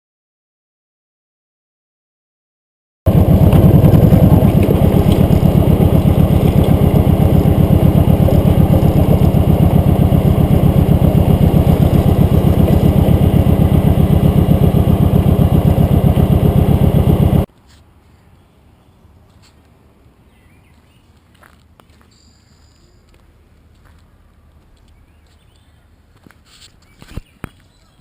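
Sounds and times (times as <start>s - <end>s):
motorcycle engine running: 3.1s - 17.5s.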